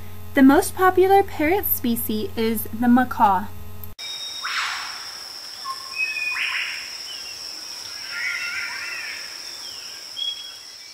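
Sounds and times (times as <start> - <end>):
bird chirps and sweeps: 4.0 - 10.9
harsh bird calls: 4.0 - 10.9.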